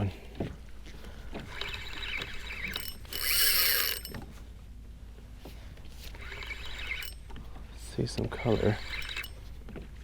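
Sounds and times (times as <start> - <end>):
fishing reel being cranked: 1.5 - 4.2, 6.1 - 7.3, 8.3 - 9.4.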